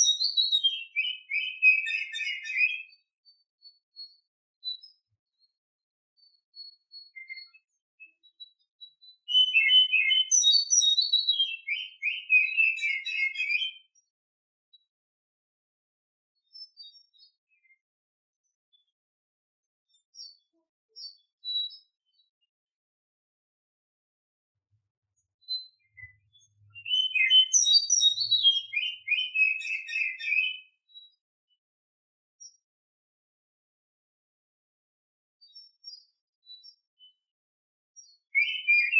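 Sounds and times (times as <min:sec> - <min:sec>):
bird singing whistles and chirps: 0:00.0 - 0:05.6, 0:06.2 - 0:14.1, 0:16.4 - 0:17.8, 0:19.9 - 0:22.3, 0:25.2 - 0:31.2, 0:35.4 - 0:37.2, 0:38.0 - 0:38.9.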